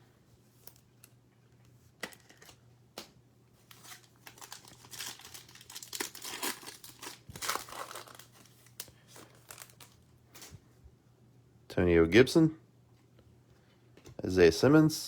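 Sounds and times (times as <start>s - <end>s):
foil wrapper tearing and crinkling: 3.6s - 10.5s.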